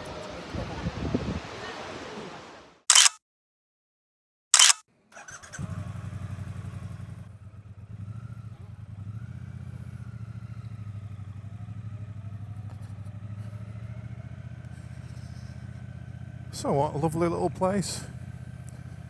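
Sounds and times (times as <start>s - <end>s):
motorcycle engine pulsing rumble: 5.1s - 19.0s.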